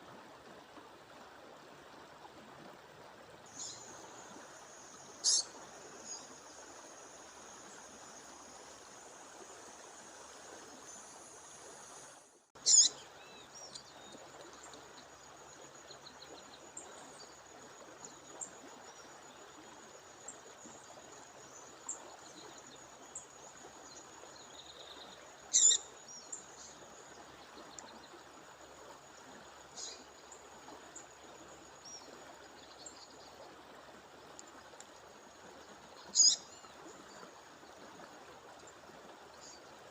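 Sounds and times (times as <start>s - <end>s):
rushing water: 0.0s - 39.9s
songbird calls: 3.5s - 6.6s, 12.6s - 17.4s, 23.9s - 28.2s, 29.7s - 30.4s, 35.8s - 37.8s.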